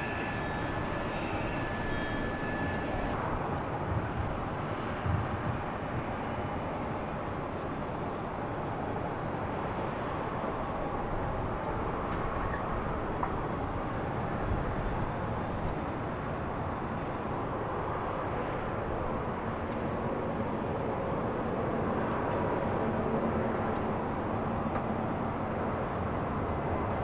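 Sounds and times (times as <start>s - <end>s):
jet engines rushing: 0.0s - 3.2s.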